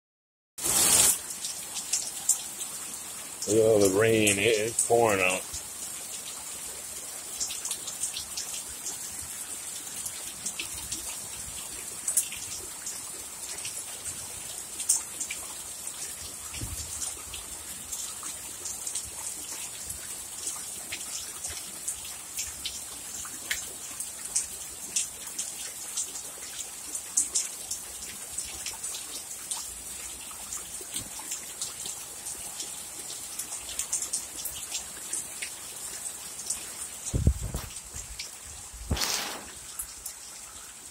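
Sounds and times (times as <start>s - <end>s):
heavy rain hissing: 0.6s - 1.4s, 3.4s - 5.5s, 37.0s - 40.1s
raindrops tapping: 37.0s - 40.2s.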